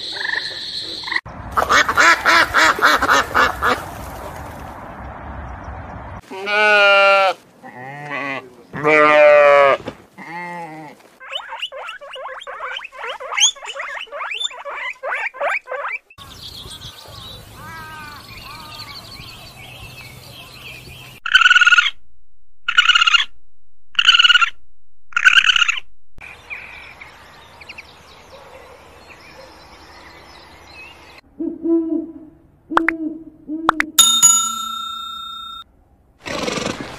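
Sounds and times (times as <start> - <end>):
animal calls: 11.2 - 16.1.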